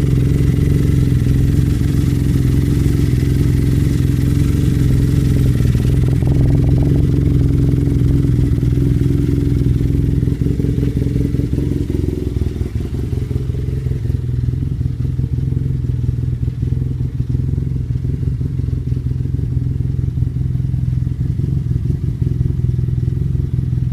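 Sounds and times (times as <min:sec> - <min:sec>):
deep engine exhaust running: 0:00.0 - 0:23.9.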